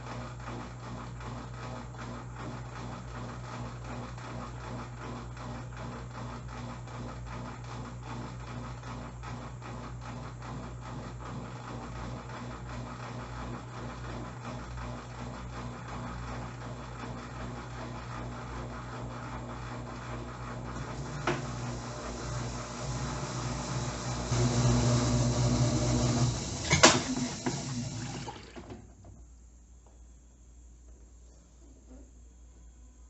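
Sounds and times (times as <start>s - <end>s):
washing machine spinning: 0.0s - 29.2s.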